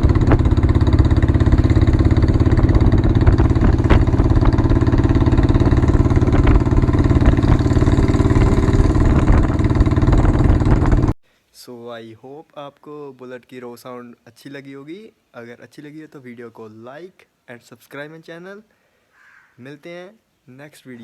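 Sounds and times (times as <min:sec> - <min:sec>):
motorcycle engine pulsing beat: 0:00.0 - 0:11.2.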